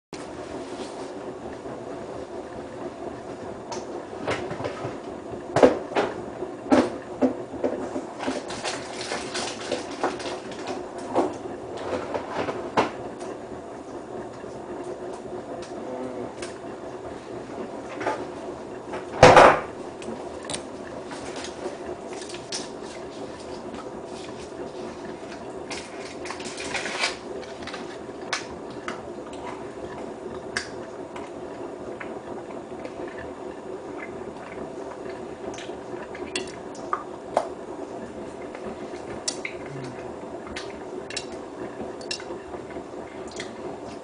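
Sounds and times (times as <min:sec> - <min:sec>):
washing machine motor hum: 0:00.2 - 0:44.0
washing machine knocks and clunks: 0:04.2 - 0:07.9, 0:19.0 - 0:19.8.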